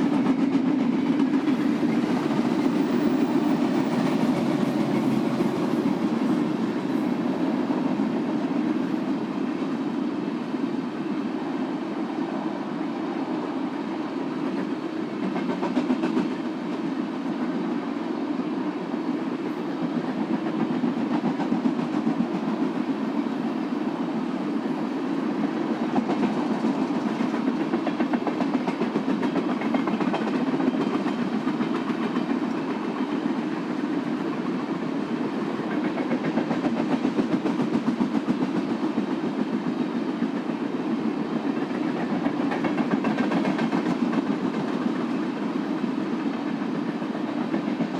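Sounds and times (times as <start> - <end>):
train cars rumbling: 0.0 - 17.9.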